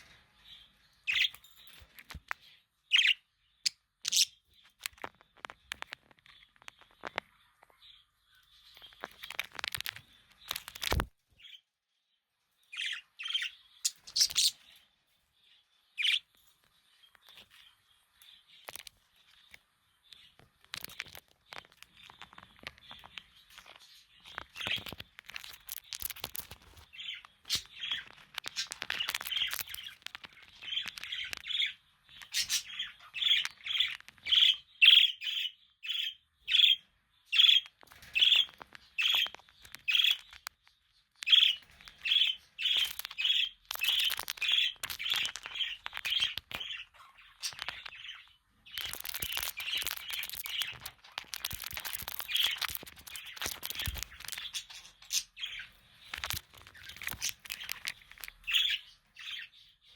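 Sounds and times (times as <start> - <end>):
budgerigars chirping: 1.1 - 1.4, 2.9 - 4.4, 12.7 - 14.8, 16.0 - 16.3, 23.0 - 40.4, 41.2 - 59.8
sharp clicks and scratchy noises: 3.7 - 7.8, 8.6 - 11.2, 18.6 - 34.6, 37.4 - 58.8.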